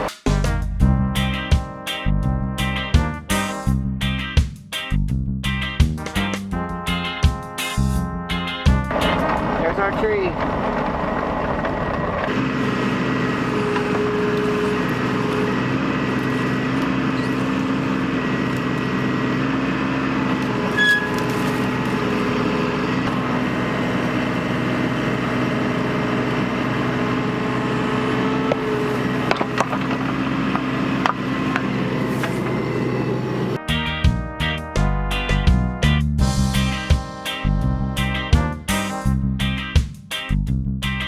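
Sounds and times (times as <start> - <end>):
diesel engine running: 7.8 - 34.4
hydraulic whine: 9.0 - 33.6.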